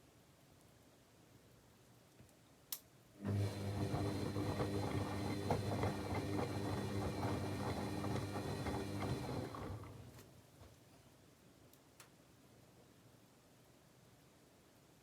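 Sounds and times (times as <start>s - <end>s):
washing machine motor hum: 3.2s - 10.2s.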